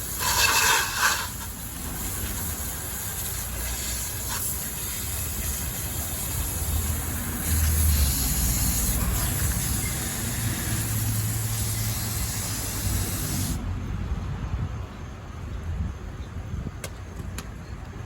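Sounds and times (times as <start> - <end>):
hissing spray: 0.0 - 13.6.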